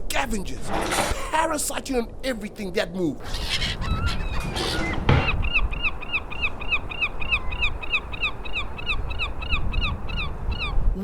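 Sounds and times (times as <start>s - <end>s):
gull calling: 3.2s - 10.8s
dull thump: 4.4s - 5.8s.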